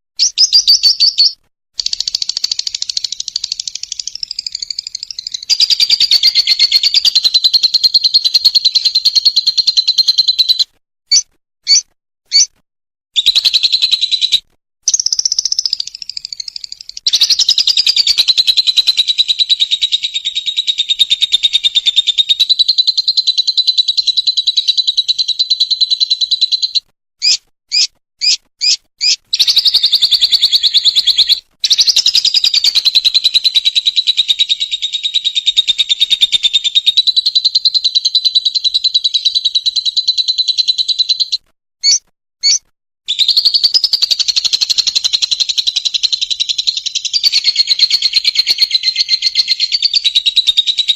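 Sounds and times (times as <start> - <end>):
lovebird rattling trills: 0.2 - 12.5, 14.9 - 38.9
bird chirps: 0.2 - 12.6, 13.2 - 50.9.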